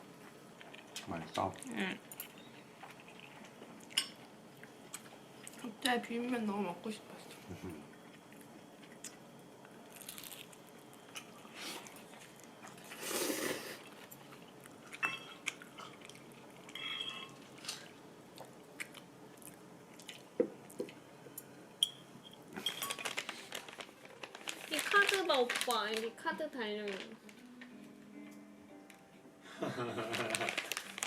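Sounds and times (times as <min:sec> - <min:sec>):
person chewing: 0:02.7 - 0:05.6, 0:07.9 - 0:21.0
utensils clinking on dishes: 0:14.9 - 0:15.9, 0:16.7 - 0:17.4, 0:21.8 - 0:23.3.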